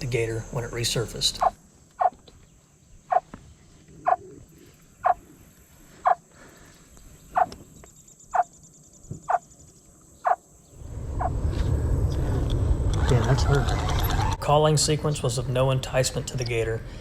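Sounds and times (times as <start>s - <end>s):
chirping alligator calls: 0.4s - 2.2s, 3.0s - 3.3s, 3.9s - 6.3s, 7.3s - 7.6s, 8.2s - 8.6s, 10.2s - 10.5s.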